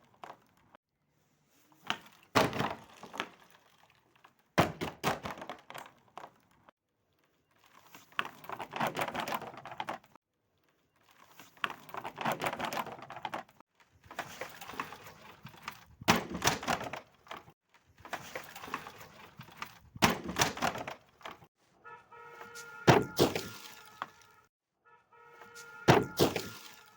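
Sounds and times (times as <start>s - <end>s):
glass bottles being crushed: 23.0s - 24.1s, 26.0s - 26.9s.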